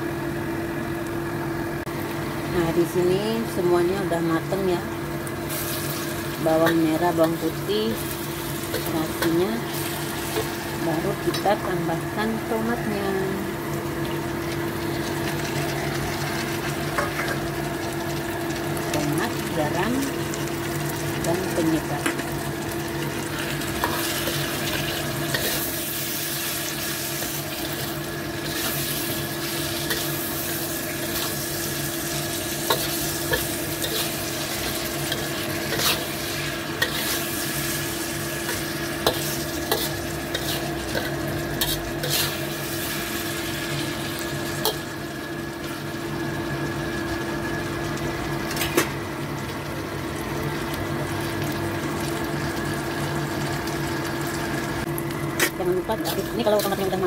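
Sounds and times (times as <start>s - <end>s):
steady hum: 0.0s - 53.5s, 54.2s - 57.0s
vegetables sizzling in a wok: 0.0s - 57.0s.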